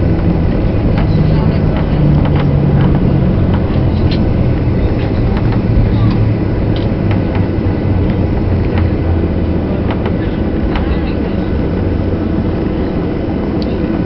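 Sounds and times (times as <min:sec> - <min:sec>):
rumble of engines and wheels: 0:00.0 - 0:14.0.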